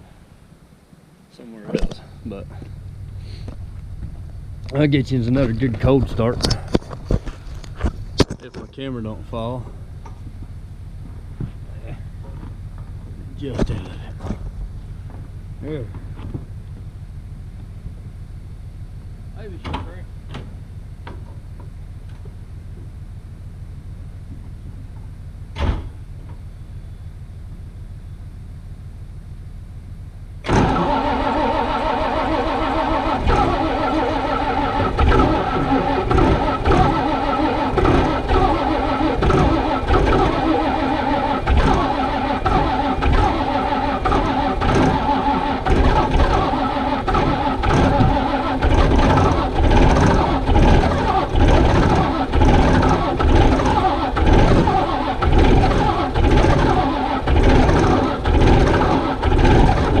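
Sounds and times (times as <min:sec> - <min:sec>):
engine cranking with starter: 0:30.4 - 1:00.0.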